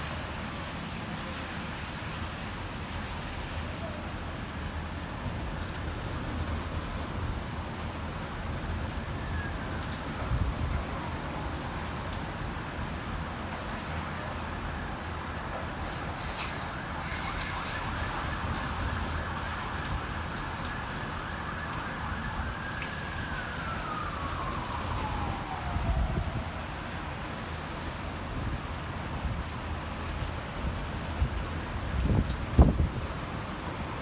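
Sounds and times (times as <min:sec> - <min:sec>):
wind rumbling on microphone: 0:05.0 - 0:34.0
siren winding down: 0:17.0 - 0:26.4.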